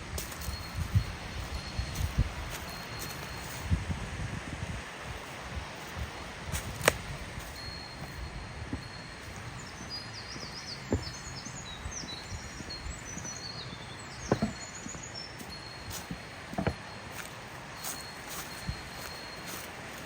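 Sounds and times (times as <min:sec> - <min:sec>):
small birds chirping: 0:05.6 - 0:19.7
sharp knocks: 0:14.3 - 0:14.6.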